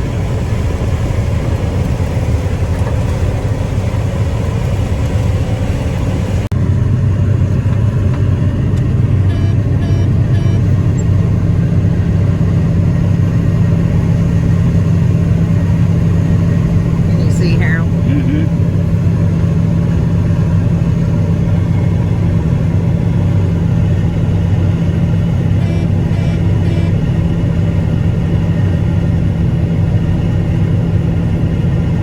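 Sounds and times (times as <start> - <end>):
farm machinery engine running: 0.0 - 32.0
short high beeps: 9.3 - 10.7, 25.6 - 27.0.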